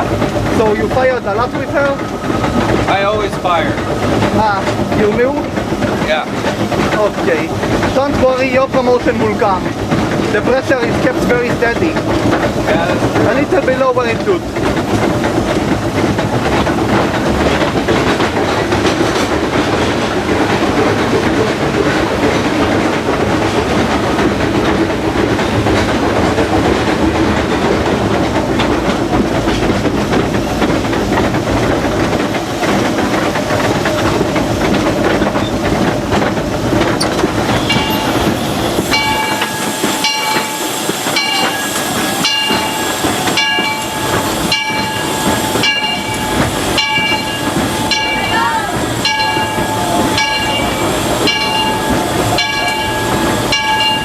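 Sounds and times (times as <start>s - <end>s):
steam hissing: 0.0s - 54.0s
wheels clattering on rails: 0.0s - 54.0s
steady high tones: 37.4s - 54.0s.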